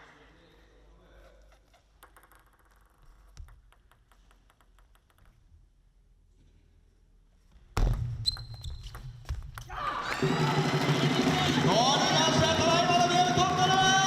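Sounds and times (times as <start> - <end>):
table tennis ball tapping: 1.7 - 5.6
crowd cheering: 9.7 - 14.0
clapping and banging: 10.0 - 14.0.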